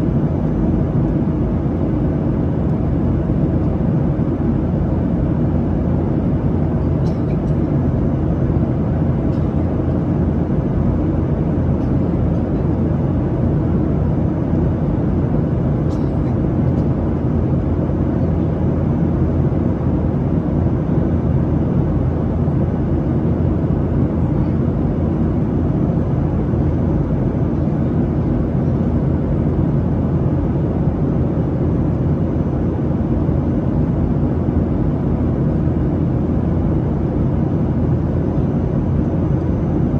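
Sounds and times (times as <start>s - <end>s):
jet engine roar in cabin: 0.0s - 39.9s.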